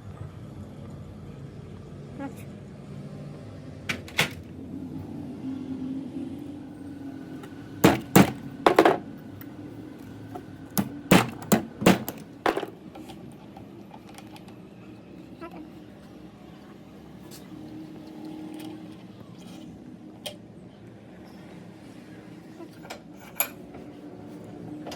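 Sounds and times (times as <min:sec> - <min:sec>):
sharp knocks on metal: 0:07.8 - 0:09.0, 0:10.8 - 0:12.7.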